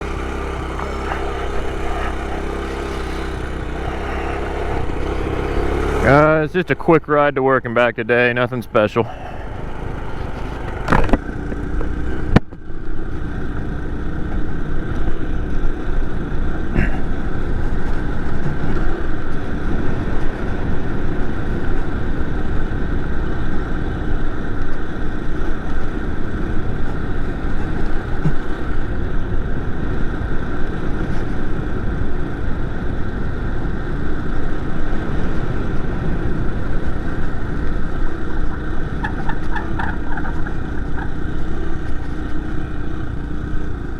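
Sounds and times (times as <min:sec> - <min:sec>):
motorized bicycle engine running: 0:00.0 - 0:06.3
wind noise: 0:25.4 - 0:43.9.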